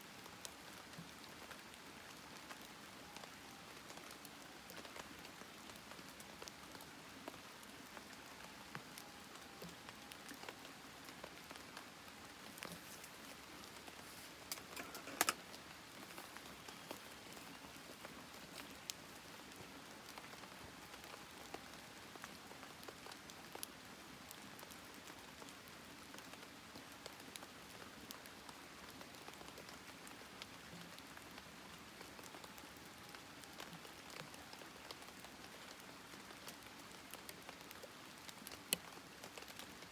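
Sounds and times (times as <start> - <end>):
campfire crackling and popping: 12.4 - 23.8.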